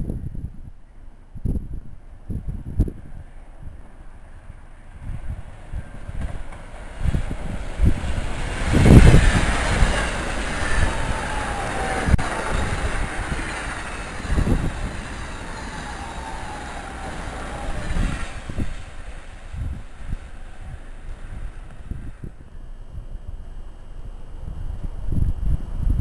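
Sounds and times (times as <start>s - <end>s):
train passing on tracks: 2.0s - 25.0s
whine sliding down in pitch: 7.0s - 22.3s.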